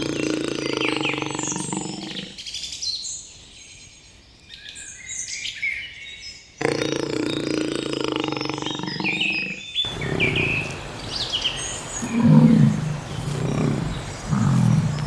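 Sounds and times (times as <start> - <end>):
large animal low calls: 0.0 - 2.4, 6.6 - 11.0, 11.8 - 15.0
birds chirping: 0.0 - 15.0
low grunts: 12.0 - 15.0.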